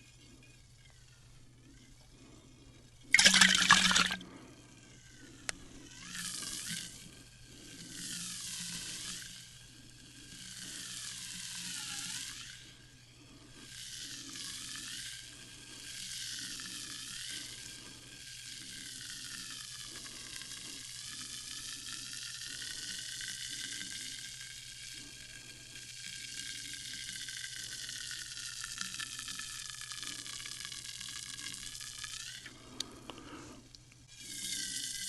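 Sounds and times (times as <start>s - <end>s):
sparkling water fizzing: 3.2s - 4.2s.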